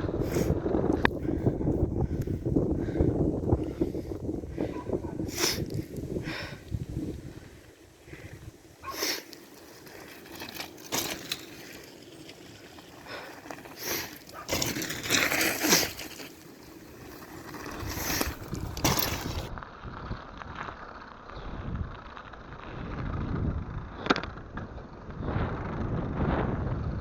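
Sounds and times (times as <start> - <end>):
bike knocks and rattles: 9.8 - 19.5.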